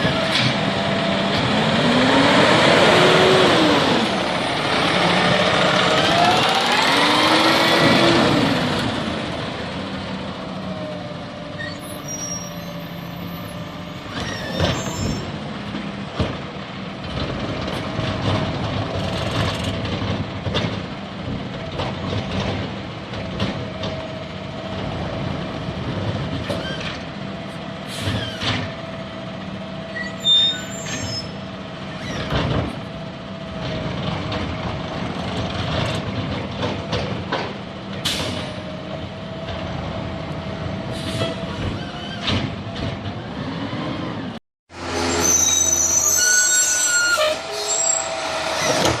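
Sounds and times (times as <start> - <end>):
garbage truck engine: 0.0 - 49.0
clunks and knocks: 14.2 - 24.2, 32.1 - 32.9, 33.5 - 39.8, 41.2 - 43.2
air brake hiss: 40.9 - 41.4.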